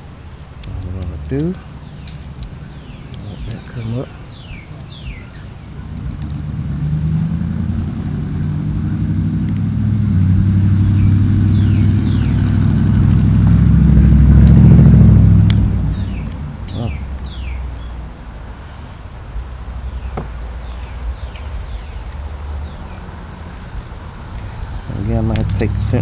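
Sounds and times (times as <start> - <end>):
bird chirps: 0.6 - 5.8, 10.7 - 12.6, 15.9 - 18.0
vehicle passing by: 5.7 - 18.1, 19.4 - 26.0.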